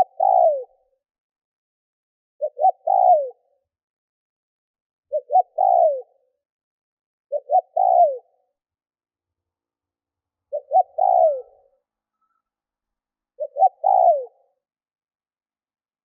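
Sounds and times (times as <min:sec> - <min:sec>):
dove cooing: 0:00.0 - 0:00.9, 0:02.4 - 0:03.6, 0:05.1 - 0:06.3, 0:07.3 - 0:08.4, 0:10.5 - 0:11.8, 0:13.4 - 0:14.6.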